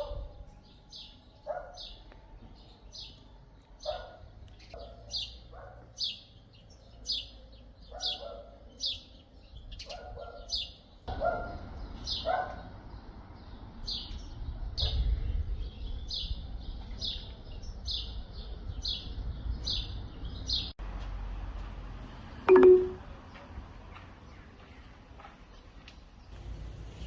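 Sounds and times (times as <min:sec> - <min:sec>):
bird chirping: 0:22.5 - 0:23.0.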